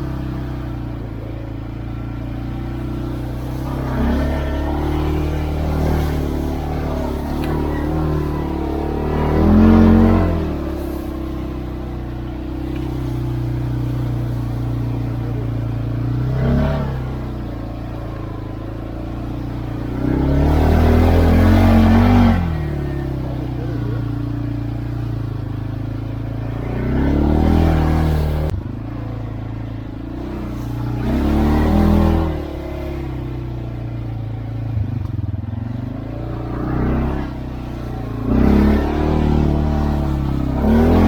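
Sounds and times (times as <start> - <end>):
atv engine revving: 0.0 - 41.0.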